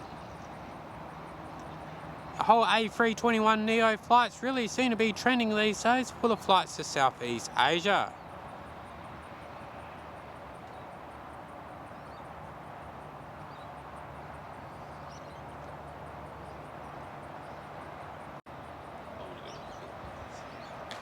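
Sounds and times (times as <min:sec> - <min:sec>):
jet engine idling: 0:00.0 - 0:21.0
faint bird chirps: 0:11.8 - 0:12.3, 0:19.0 - 0:20.9.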